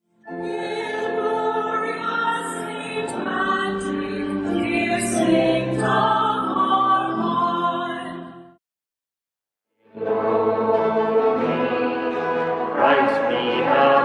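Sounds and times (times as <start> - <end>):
choir singing long notes: 9.9 - 14.0.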